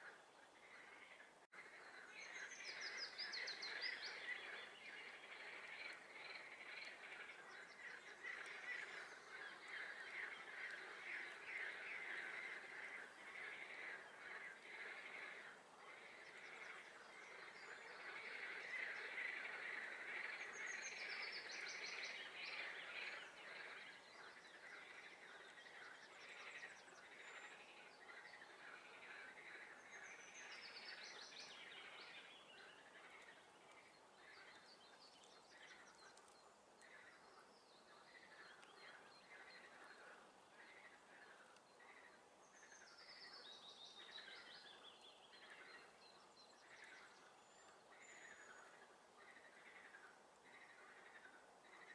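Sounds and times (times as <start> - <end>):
songbirds singing: 0.0 - 51.9.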